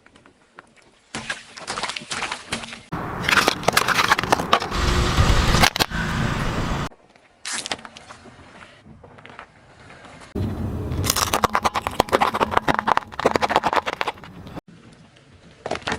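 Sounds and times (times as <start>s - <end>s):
objects crunching under car tyres: 2.8s - 5.9s, 7.4s - 14.7s.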